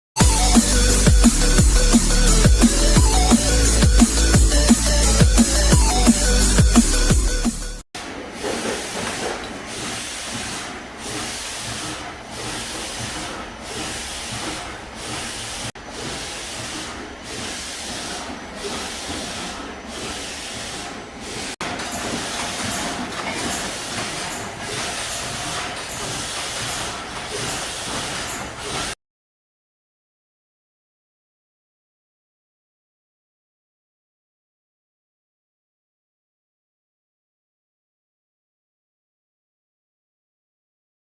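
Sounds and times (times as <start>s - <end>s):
drain pump with rushing water: 8.0s - 29.0s.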